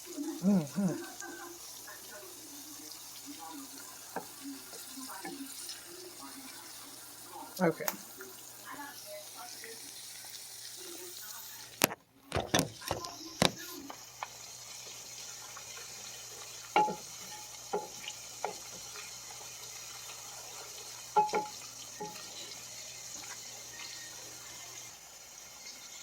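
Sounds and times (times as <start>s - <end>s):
onions sizzling in oil: 0.0s - 11.9s, 12.7s - 26.0s
utensil clinking against pan: 16.7s - 17.1s, 21.1s - 22.3s.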